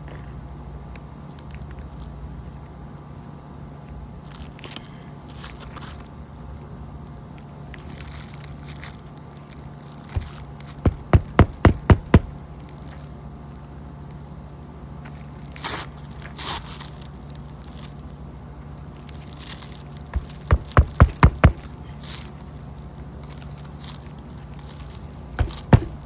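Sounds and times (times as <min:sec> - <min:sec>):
hammer driving nails into shingles: 0:10.2 - 0:12.4, 0:20.2 - 0:21.9, 0:25.4 - 0:26.0.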